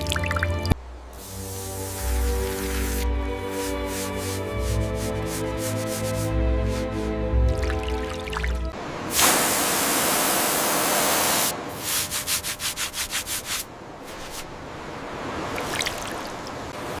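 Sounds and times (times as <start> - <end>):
abrasive scrubbing on metal blade: 1.3 - 7.0.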